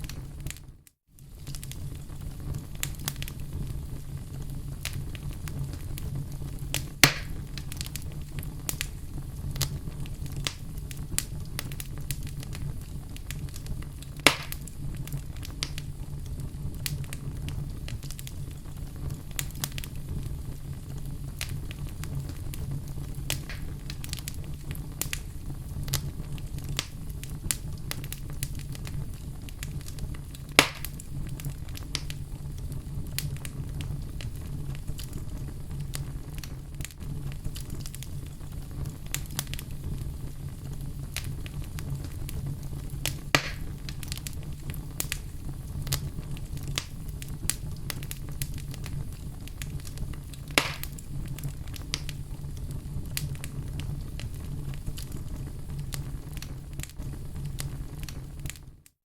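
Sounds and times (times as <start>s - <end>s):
fire burning in a fireplace: 0.0s - 59.0s
loud sharp pops: 7.0s - 7.4s, 14.2s - 14.6s, 23.4s - 23.9s, 30.6s - 31.0s, 43.3s - 43.8s, 50.5s - 51.0s.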